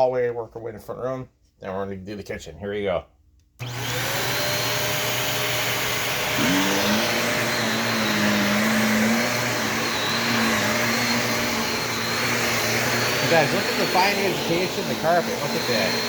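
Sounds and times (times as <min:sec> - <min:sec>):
vacuum cleaner whirring: 0:03.6 - 0:16.0.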